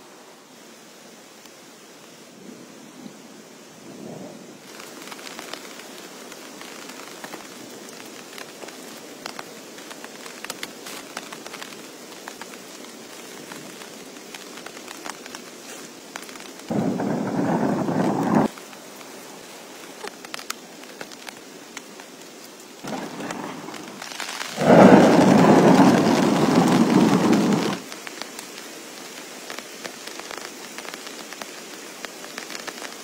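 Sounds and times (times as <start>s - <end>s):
heavy rain: 0.0s - 33.0s
thunder rumbling: 16.7s - 18.5s, 22.9s - 27.8s.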